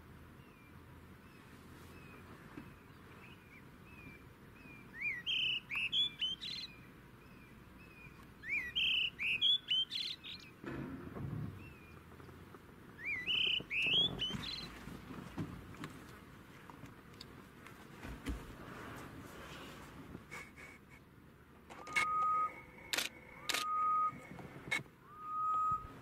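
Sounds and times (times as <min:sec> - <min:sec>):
soft bird chirps: 0:00.4 - 0:10.6, 0:13.0 - 0:14.9
bird whistling rising notes: 0:08.4 - 0:10.2, 0:13.0 - 0:14.7, 0:21.8 - 0:24.3, 0:25.0 - 0:26.0.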